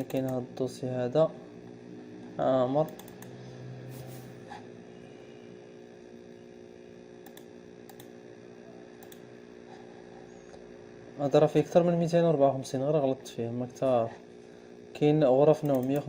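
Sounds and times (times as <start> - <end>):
computer mouse clicks: 0.0 - 0.4, 2.8 - 4.3, 7.2 - 8.1, 9.0 - 9.3, 15.6 - 16.0
low electrical hum: 0.0 - 16.0.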